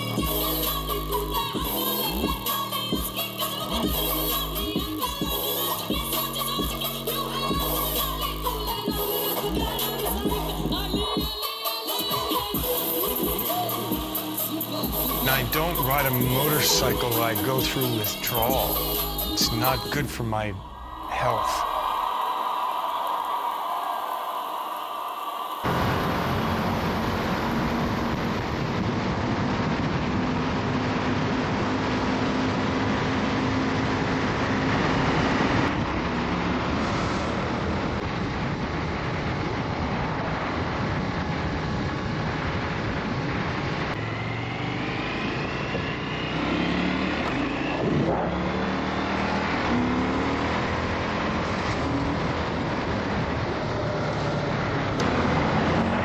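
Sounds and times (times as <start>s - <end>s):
steady rush of noise: 0.2s - 31.9s
motorcycle engine revving: 44.8s - 56.0s.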